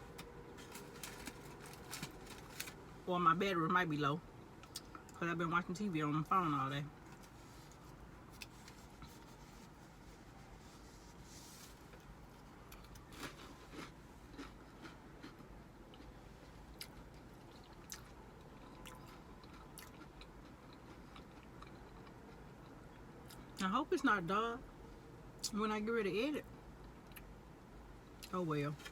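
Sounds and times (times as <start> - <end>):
faint low background hum: 0.0 - 28.9
person chewing: 12.0 - 23.5.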